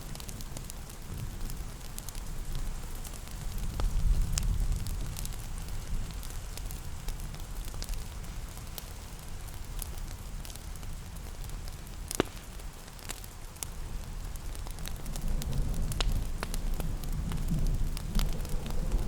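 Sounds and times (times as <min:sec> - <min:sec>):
soft hiss of rain: 0:00.0 - 0:19.0
wood fire crackling and popping: 0:00.0 - 0:19.0
steady low rumble: 0:14.6 - 0:19.0.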